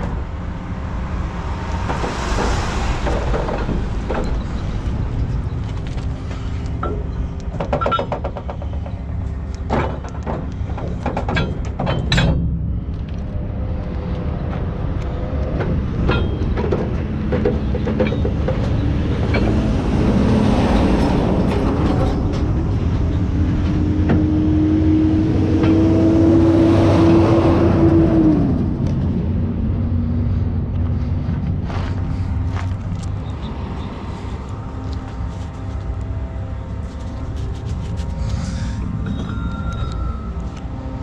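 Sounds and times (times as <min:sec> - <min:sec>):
heavy truck clanking and rattling: 0:00.0 - 0:24.6
steady whine: 0:27.9 - 0:41.0.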